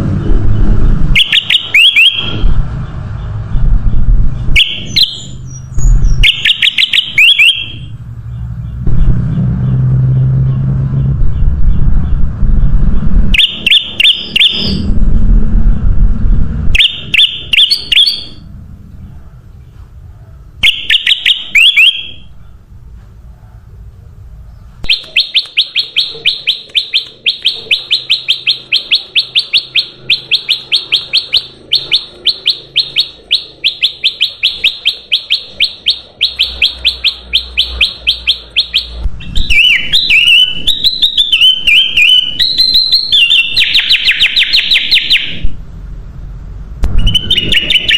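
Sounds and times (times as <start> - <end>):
low rumble: 0.0 - 1.2, 2.2 - 6.2, 7.7 - 20.6, 45.3 - 47.9
bulbul chirping and warbling: 0.3 - 15.0, 16.7 - 19.2, 20.6 - 22.5, 24.8 - 45.4, 46.9 - 47.9.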